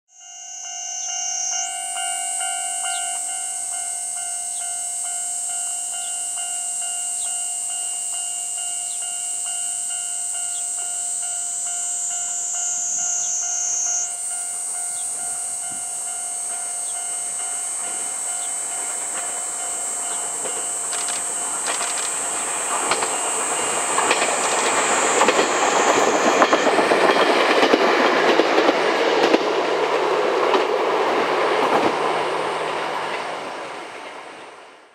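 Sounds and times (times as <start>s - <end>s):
cicadas shrilling: 0.2s - 27.6s
steady tone: 9.7s - 27.6s
train wheels clacking over joints: 17.0s - 32.0s.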